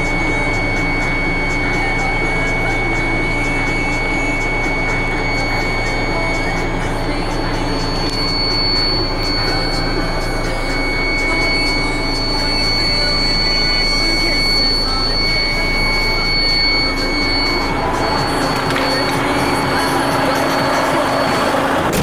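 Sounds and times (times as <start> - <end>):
high-pitched whine: 0.0 - 22.0
truck diesel engine running: 0.0 - 22.0.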